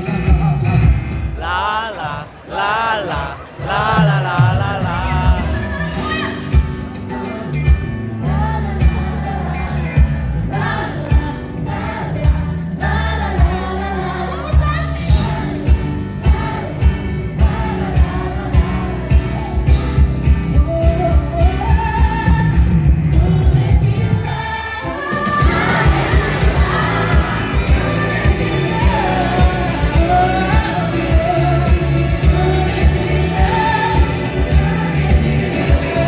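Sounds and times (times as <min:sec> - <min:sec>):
live pop band playing: 0:00.0 - 0:36.0
drum beat: 0:00.2 - 0:07.0, 0:25.1 - 0:36.0
woman singing with vibrato: 0:01.4 - 0:06.7, 0:08.2 - 0:36.0.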